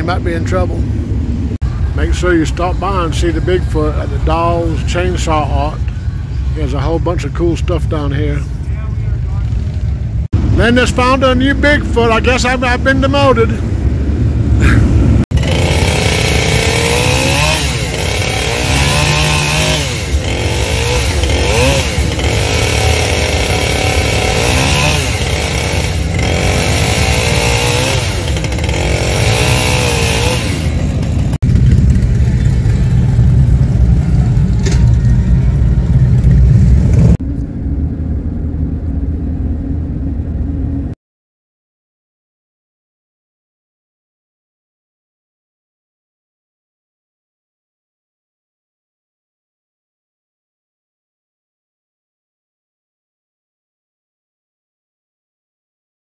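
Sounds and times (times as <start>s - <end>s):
engines revving: 0.0s - 41.0s
low vehicle rumble: 0.0s - 41.0s.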